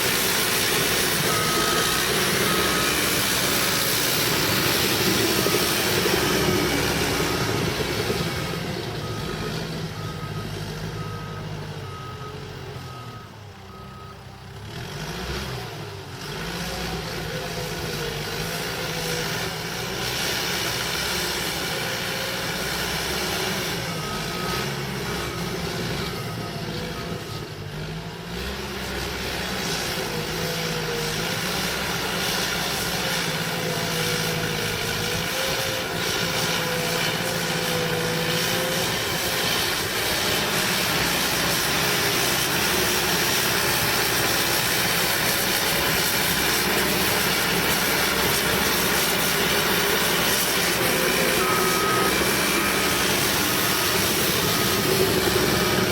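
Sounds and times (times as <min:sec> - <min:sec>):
bulldozer diesel engine whining: 0:00.0 - 0:55.9.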